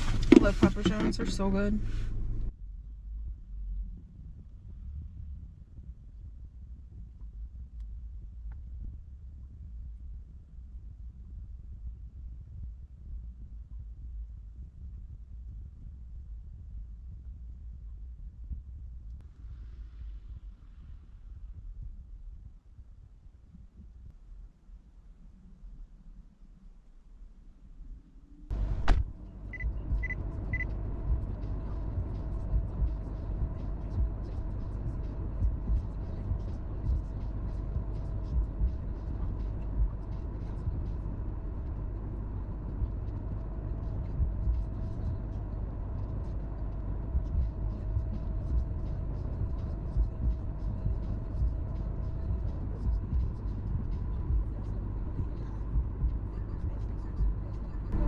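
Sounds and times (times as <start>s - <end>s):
car bumps: 0.0s - 2.5s, 28.5s - 29.1s
car engine and tyres rumbling: 0.0s - 22.6s, 28.0s - 58.0s
car door thud: 28.6s - 29.1s
short high beeps: 29.5s - 30.7s.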